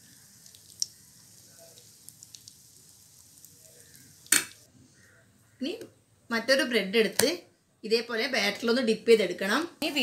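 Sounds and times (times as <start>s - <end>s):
bread frying sizzle: 0.0s - 4.7s.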